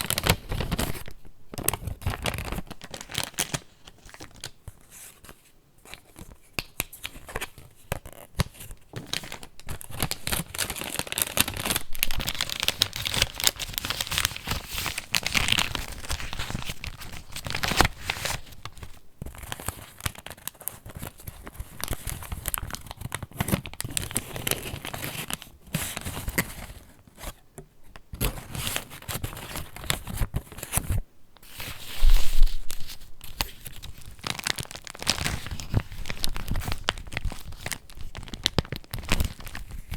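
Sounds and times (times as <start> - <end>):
paper pages crinkling and rustling: 0.0 - 27.4, 28.2 - 39.9.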